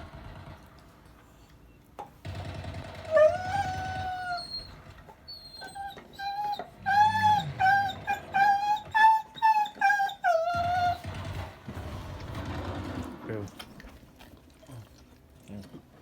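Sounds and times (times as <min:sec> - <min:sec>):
dog whining: 0:02.8 - 0:11.6.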